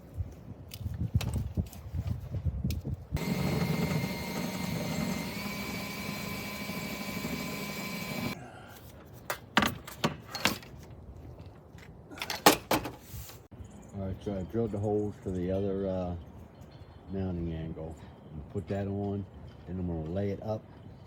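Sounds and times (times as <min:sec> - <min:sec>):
electric drill whining: 0:03.2 - 0:08.4.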